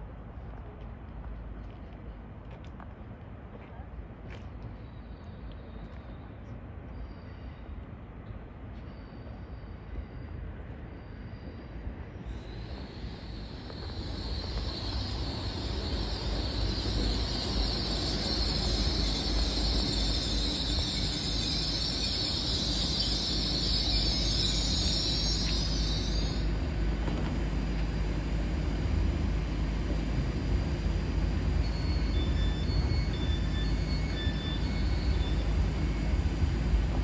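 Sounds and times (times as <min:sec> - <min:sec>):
train wheels rumbling: 0:12.2 - 0:37.0
high hiss: 0:12.3 - 0:37.0.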